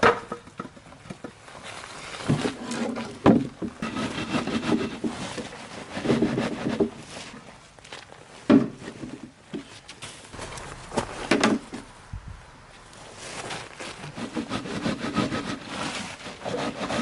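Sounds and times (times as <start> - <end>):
rubbing and scraping: 1.5 - 7.5, 10.3 - 17.0
sharp handling knocks: 10.4 - 12.2.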